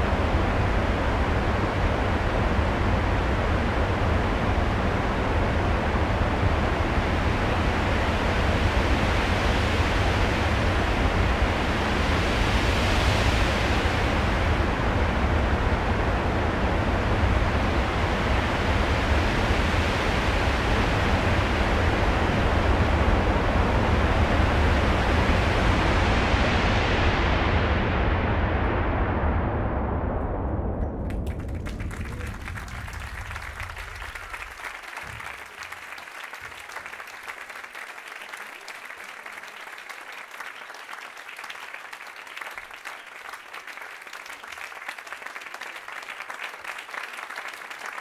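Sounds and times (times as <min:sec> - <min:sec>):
deep rumble: 0:00.0 - 0:35.3
rushing wind-like noise: 0:00.0 - 0:35.3.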